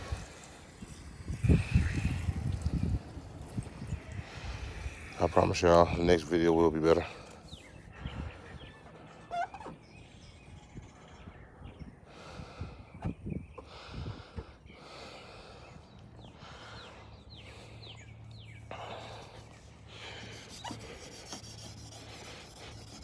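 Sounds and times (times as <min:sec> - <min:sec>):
short squeaks: 0:08.7 - 0:10.6
person breathing heavily: 0:13.6 - 0:23.0
abrasive pad scrubbing plastic: 0:20.2 - 0:23.0.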